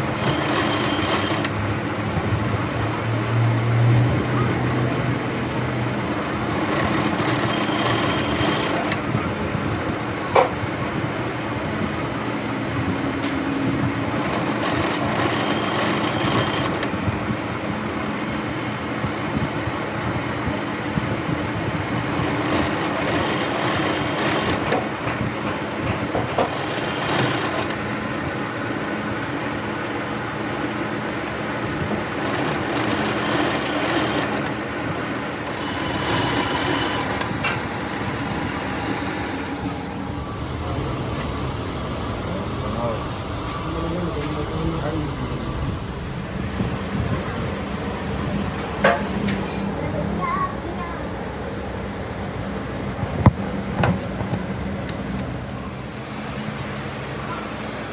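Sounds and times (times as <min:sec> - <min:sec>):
high-pitched ringing squeal: 0:00.0 - 0:01.5, 0:07.2 - 0:09.1, 0:35.4 - 0:47.8
mechanical workshop noise: 0:00.0 - 0:17.4, 0:21.9 - 0:30.2, 0:31.2 - 0:47.7.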